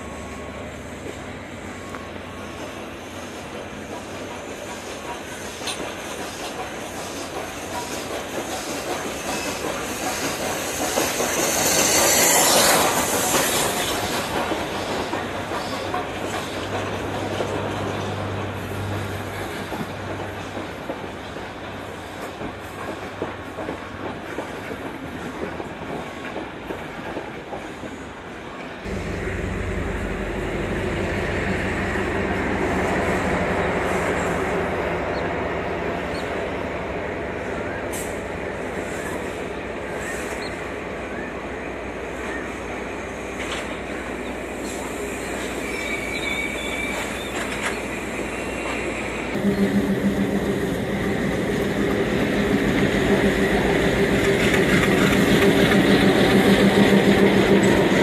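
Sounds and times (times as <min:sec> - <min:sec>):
diesel train engine drone: 0:00.0 - 0:24.7, 0:26.5 - 0:58.0
steam train passing: 0:00.0 - 0:58.0.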